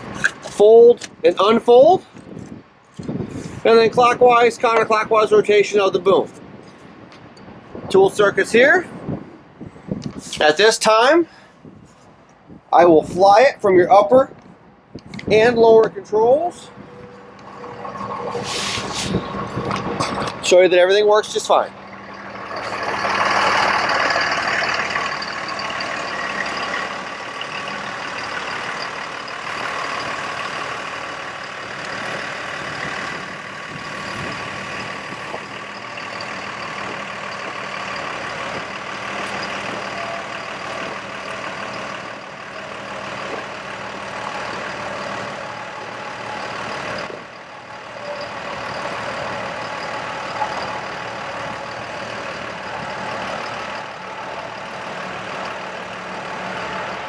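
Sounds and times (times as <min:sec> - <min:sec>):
truck diesel engine running: 0:15.4 - 0:57.0
hydraulic whine: 0:16.6 - 0:20.6, 0:21.2 - 0:57.0.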